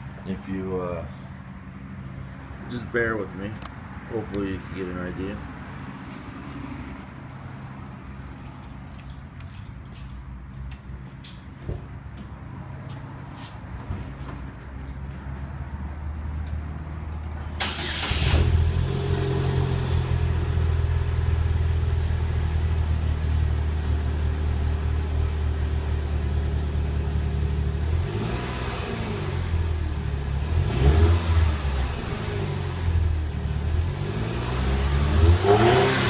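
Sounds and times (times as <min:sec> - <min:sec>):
car engine idling and revving: 0:14.8 - 0:36.0.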